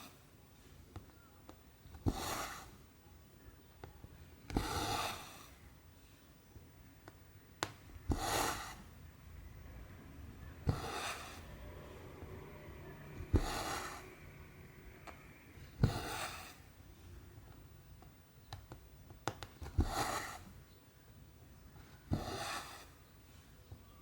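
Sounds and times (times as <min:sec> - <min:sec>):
needle tapping fabric: 0:18.0 - 0:20.2.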